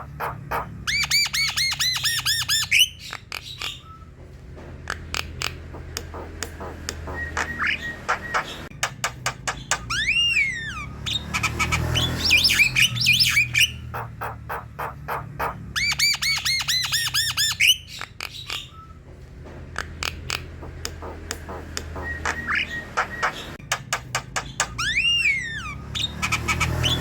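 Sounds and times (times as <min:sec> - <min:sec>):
bird singing clicks and whistles: 0:04.9 - 0:10.5, 0:19.8 - 0:27.0.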